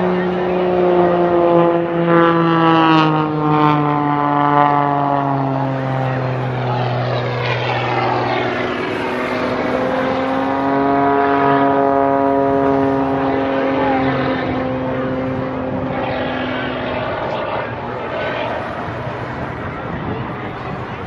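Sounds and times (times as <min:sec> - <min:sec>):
propeller plane engine droning: 0:00.0 - 0:21.0.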